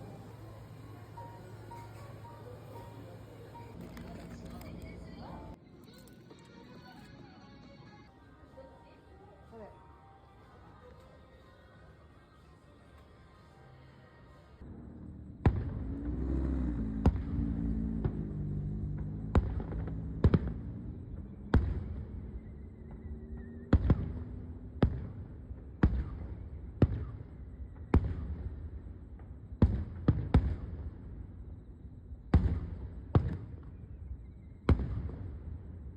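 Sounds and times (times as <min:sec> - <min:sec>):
fireworks banging: 0:00.0 - 0:05.6, 0:15.3 - 0:31.4, 0:32.1 - 0:35.9.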